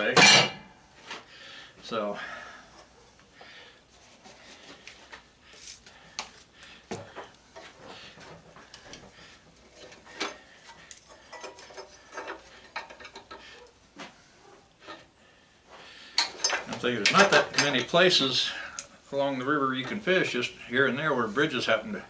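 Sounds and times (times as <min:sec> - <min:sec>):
hand tools clicking and tapping metal: 0:04.8 - 0:15.1, 0:16.1 - 0:18.1.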